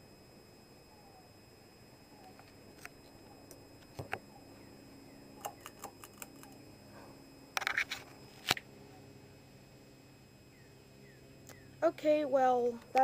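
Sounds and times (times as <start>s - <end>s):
ceiling fan hum: 0.0s - 13.0s
fan clicks and ticks: 5.4s - 6.6s, 12.6s - 13.0s.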